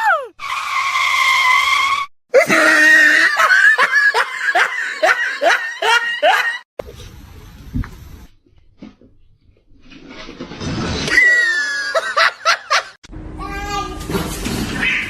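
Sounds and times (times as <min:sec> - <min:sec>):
voice crying out: 0:00.0 - 0:00.4, 0:02.4 - 0:03.5.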